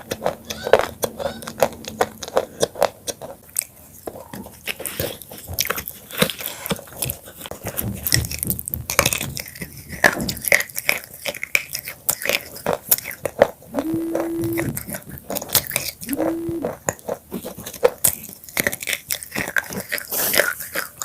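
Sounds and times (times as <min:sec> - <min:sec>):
chips crunching being chewed: 0:00.0 - 0:07.5, 0:09.1 - 0:13.6.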